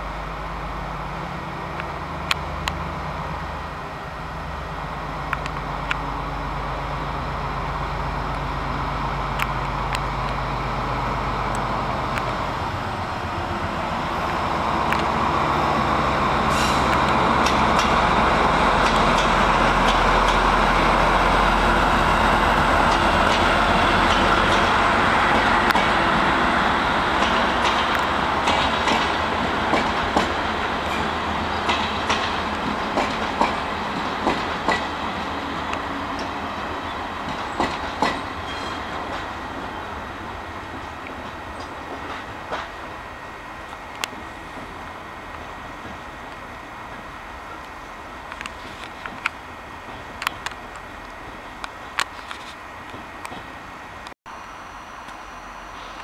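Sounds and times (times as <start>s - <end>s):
train rushing on rails: 0.0s - 56.0s.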